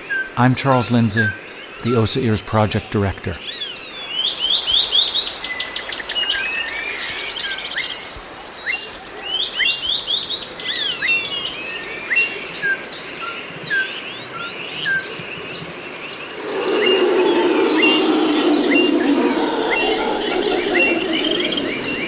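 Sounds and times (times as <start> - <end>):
birds chirping: 8.8 - 22.0
high insect buzz: 13.9 - 22.0
short falling whistles: 16.1 - 22.0.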